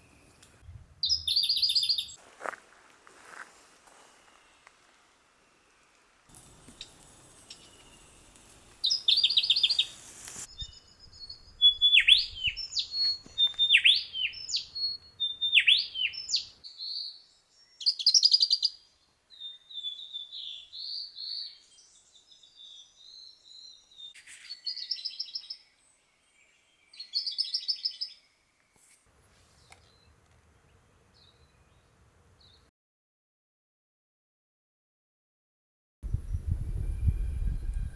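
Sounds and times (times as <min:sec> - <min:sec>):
sharp whistled bird notes: 0:00.0 - 0:02.2, 0:06.5 - 0:17.1, 0:36.1 - 0:37.9
soft bird chirps: 0:00.0 - 0:02.2, 0:03.3 - 0:32.7
buzzy rattling bird trills: 0:06.3 - 0:14.7.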